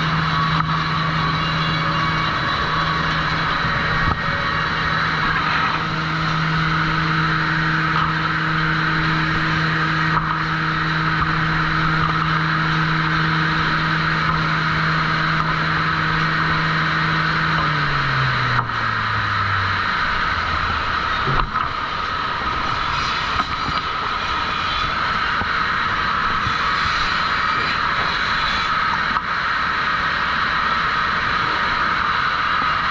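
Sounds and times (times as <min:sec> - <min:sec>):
motor winding down: 0:00.0 - 0:29.2
sawmill machinery running: 0:00.0 - 0:32.9.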